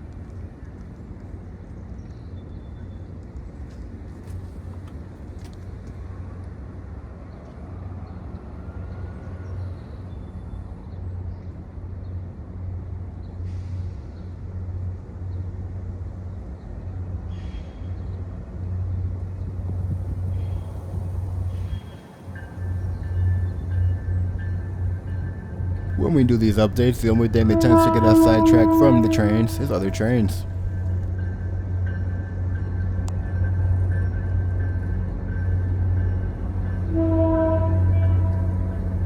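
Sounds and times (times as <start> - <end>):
diesel locomotive engine rumbling: 18.2 - 39.0.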